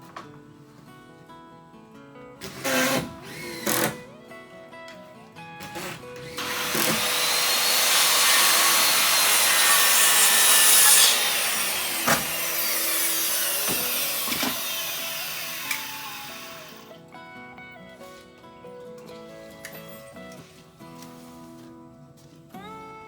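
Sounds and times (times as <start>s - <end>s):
power saw cutting lumber: 5.8s - 16.9s.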